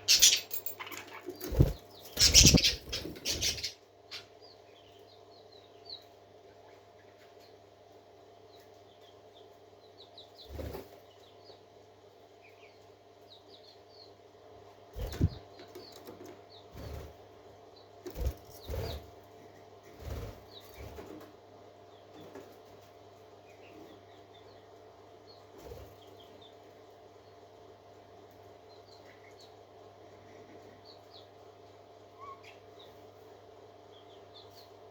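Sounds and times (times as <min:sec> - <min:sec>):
parakeets chirping: 0:00.0 - 0:04.4, 0:15.0 - 0:15.4
low fluttering thumps: 0:15.0 - 0:15.4.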